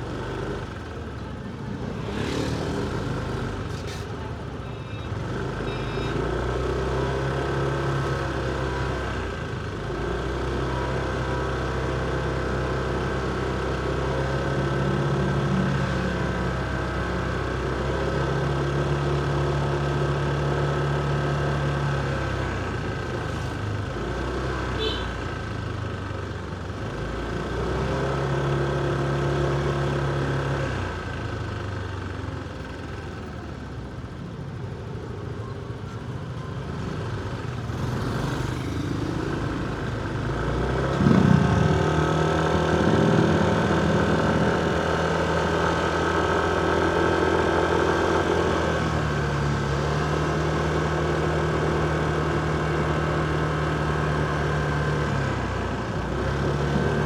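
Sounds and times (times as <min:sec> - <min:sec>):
motorcycle engine running: 0:37.0 - 0:57.0.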